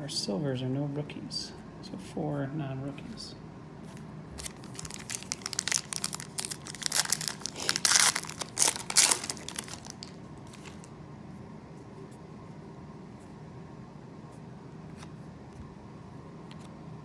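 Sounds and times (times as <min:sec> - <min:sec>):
wrapper tearing and crinkling: 0:04.4 - 0:10.9.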